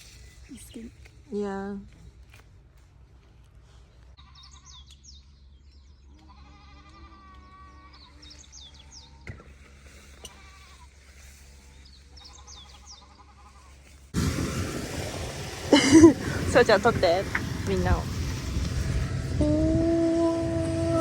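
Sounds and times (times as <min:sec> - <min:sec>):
faint bleat-like animal calls: 0:06.2 - 0:08.4, 0:10.2 - 0:11.0, 0:12.2 - 0:13.8.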